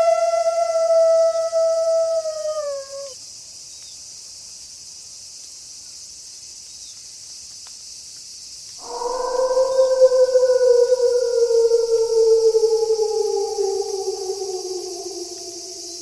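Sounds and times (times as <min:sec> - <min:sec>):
wolf howling: 0:00.0 - 0:03.2, 0:08.8 - 0:16.0
crickets chirring: 0:00.0 - 0:16.0.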